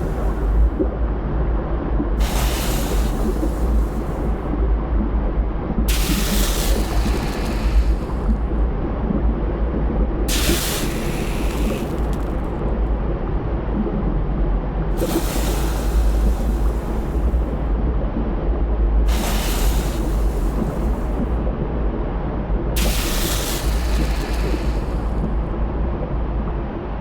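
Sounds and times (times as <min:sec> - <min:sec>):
loud hissing rush: 0:00.0 - 0:00.8, 0:02.2 - 0:04.5, 0:05.9 - 0:08.4, 0:10.3 - 0:12.6, 0:15.0 - 0:17.6, 0:19.1 - 0:21.4, 0:22.8 - 0:25.3
volcano low rumble: 0:00.0 - 0:27.0.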